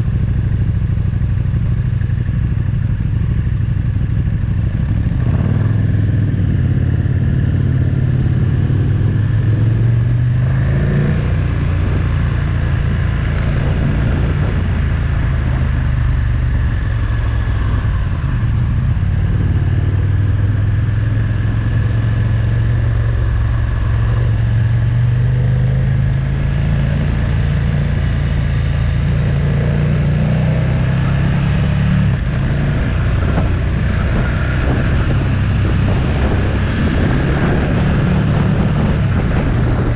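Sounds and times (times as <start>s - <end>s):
motorcycle engine revving: 0.0s - 39.9s
wind and road rush: 0.0s - 39.9s.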